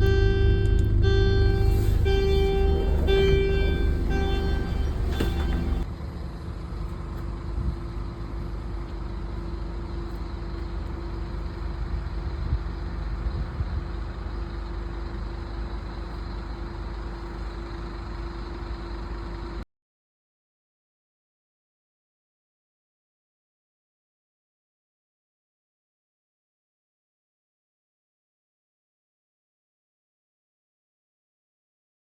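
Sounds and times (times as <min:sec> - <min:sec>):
bus diesel engine idling: 0:00.0 - 0:19.6.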